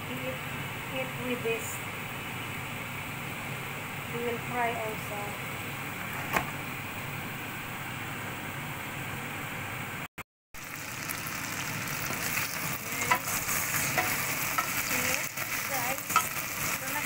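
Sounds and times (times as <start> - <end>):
chicken sizzling in hot oil: 10.6 - 17.0.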